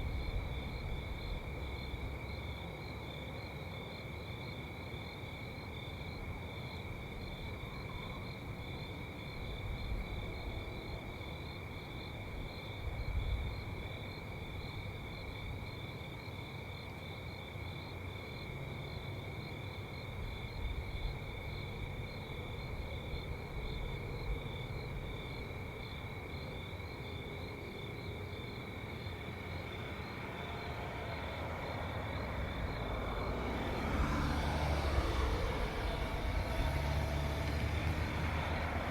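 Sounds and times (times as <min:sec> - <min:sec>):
crickets chirping: 0:00.0 - 0:38.9
car approaching: 0:28.8 - 0:38.9.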